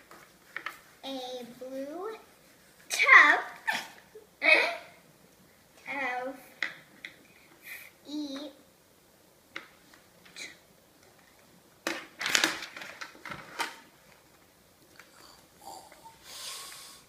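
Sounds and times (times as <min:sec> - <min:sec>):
rustling and tapping: 0:00.0 - 0:00.9.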